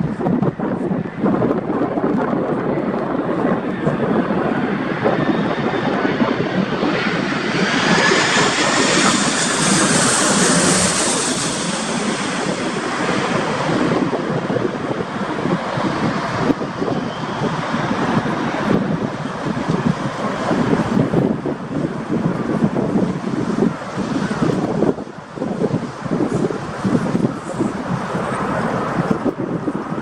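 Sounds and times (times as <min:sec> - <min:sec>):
jet airliner passing: 0:00.0 - 0:30.0
wind rumbling on microphone: 0:00.0 - 0:30.0.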